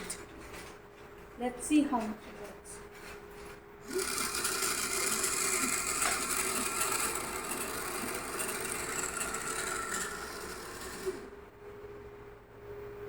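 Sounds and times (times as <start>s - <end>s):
small electric motor whirring: 3.8s - 11.4s.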